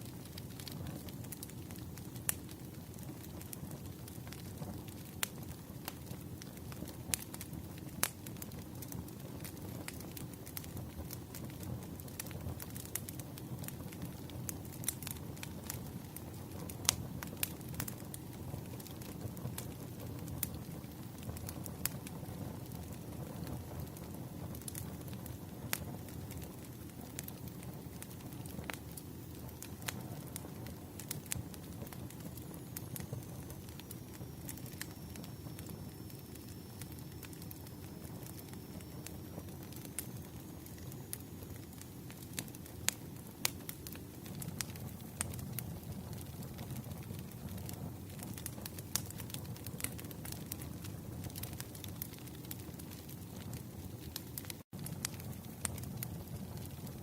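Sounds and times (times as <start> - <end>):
wood fire crackling: 0.0 - 57.0
faint high whistle: 32.4 - 41.4.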